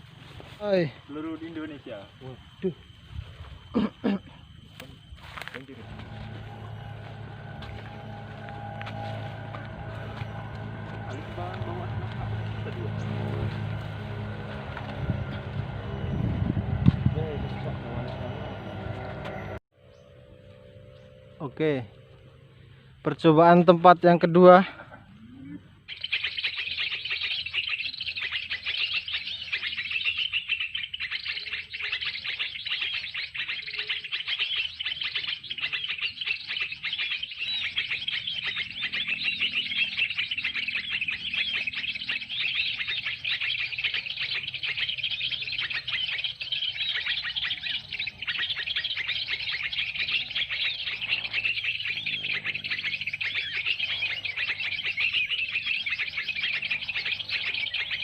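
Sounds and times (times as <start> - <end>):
recorded songbird chirps from speaker: 25.2 - 58.0.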